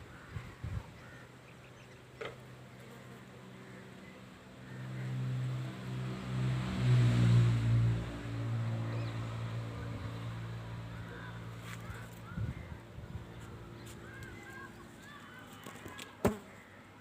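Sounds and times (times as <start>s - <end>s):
vehicle engine passing by: 3.4s - 14.2s.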